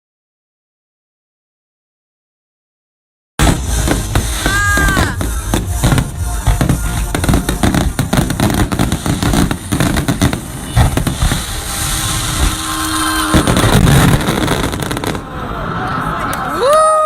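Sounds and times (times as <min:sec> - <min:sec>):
fireworks bangs and crackles: 0:03.4 - 0:16.8.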